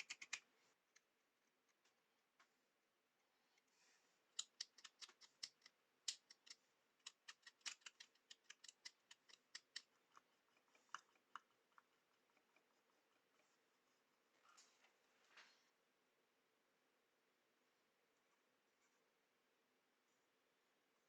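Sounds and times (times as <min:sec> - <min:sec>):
small tools clicking and snipping: 0:04.3 - 0:11.6.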